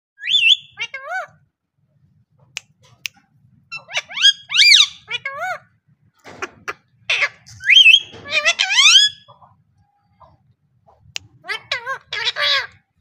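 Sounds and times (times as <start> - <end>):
parrot whistling calls: 0.2 - 0.8, 3.7 - 5.1, 7.1 - 9.3.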